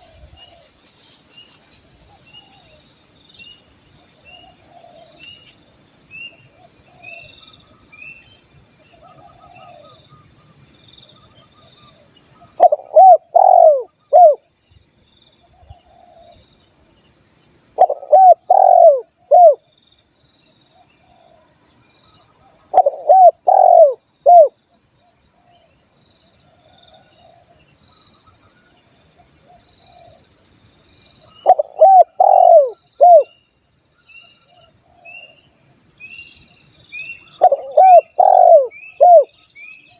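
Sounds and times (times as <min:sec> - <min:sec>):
faint bird chirps: 0:00.0 - 0:39.9
dove cooing: 0:12.6 - 0:14.4, 0:17.8 - 0:19.6, 0:22.7 - 0:24.5, 0:31.4 - 0:33.3, 0:37.4 - 0:39.3.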